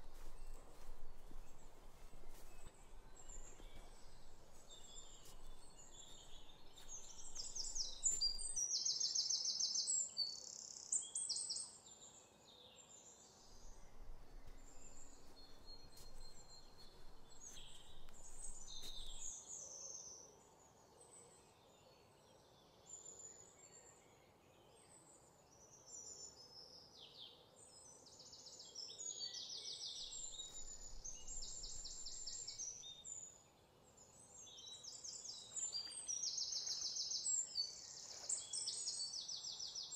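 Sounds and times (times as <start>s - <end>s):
birds chirping and trilling: 0.0s - 8.8s, 13.5s - 19.3s
faint steady hiss: 0.0s - 8.8s.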